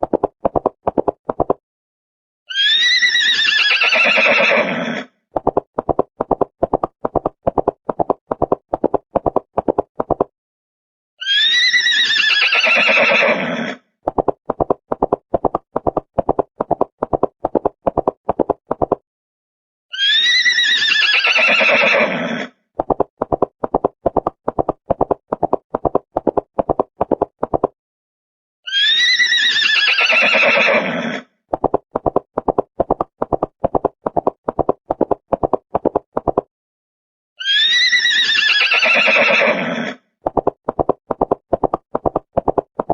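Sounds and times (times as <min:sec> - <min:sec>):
horse whinny: 0:02.5 - 0:05.2, 0:11.2 - 0:13.8, 0:19.9 - 0:22.6, 0:28.7 - 0:31.3, 0:37.4 - 0:40.0
horse hooves clip-clopping: 0:40.3 - 0:42.9.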